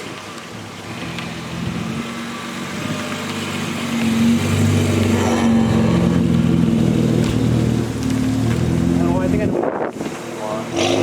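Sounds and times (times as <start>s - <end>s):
car engine running: 0.5s - 10.4s.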